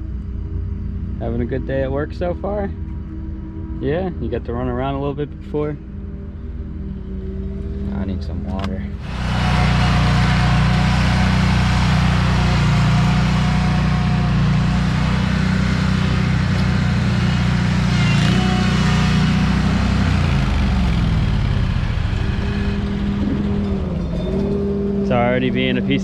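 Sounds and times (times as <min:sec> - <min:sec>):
blower engine running: 0:09.0 - 0:26.0.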